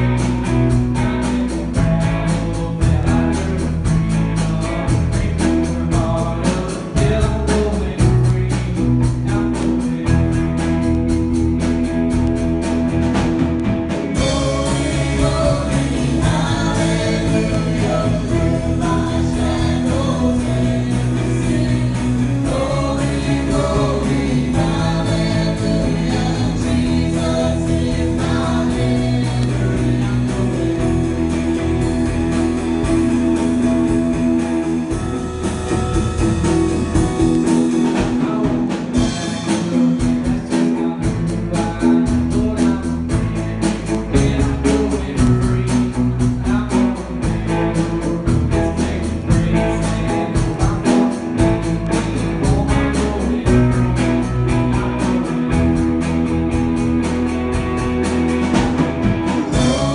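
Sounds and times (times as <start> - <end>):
gospel singing: 0.0 - 11.2, 13.4 - 59.9
rhythmic guitar strumming: 0.0 - 59.9
instruments playing: 11.1 - 39.4.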